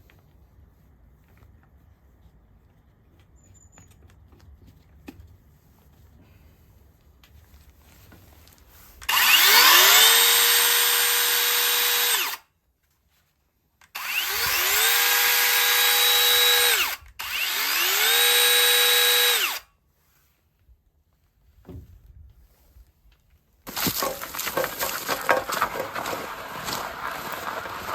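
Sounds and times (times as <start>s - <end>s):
cordless electric saw whining: 9.0s - 12.4s, 13.9s - 19.7s, 23.7s - 27.9s.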